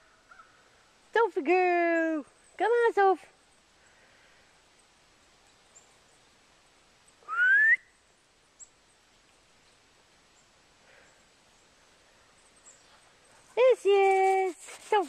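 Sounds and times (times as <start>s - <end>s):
person whistling: 7.3s - 7.9s.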